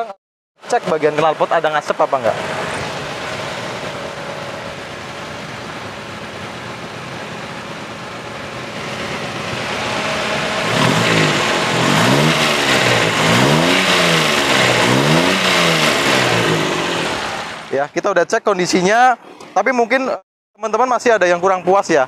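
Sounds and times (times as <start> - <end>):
car engine idling: 0.6 - 18.2
car engine revving: 0.7 - 17.9.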